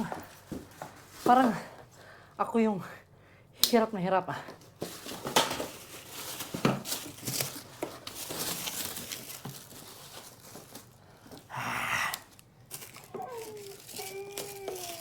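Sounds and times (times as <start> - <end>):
plastic wrapping crinkling: 4.8 - 11.5, 12.3 - 15.0.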